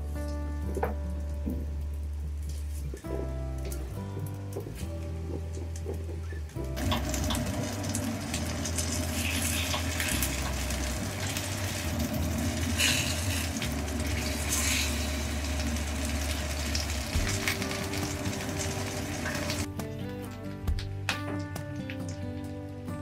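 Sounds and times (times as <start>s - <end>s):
fish sizzling in oil: 6.8s - 19.7s.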